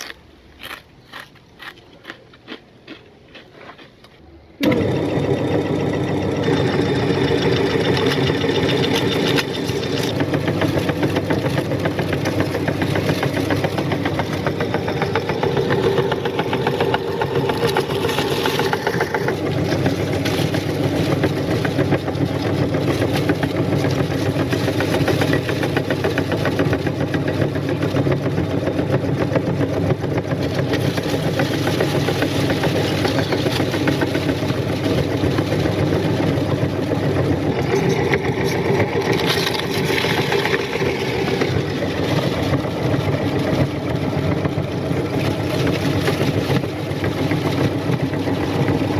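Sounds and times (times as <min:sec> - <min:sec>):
meat grinder crushing chips: 0:00.0 - 0:03.9, 0:04.6 - 0:48.9.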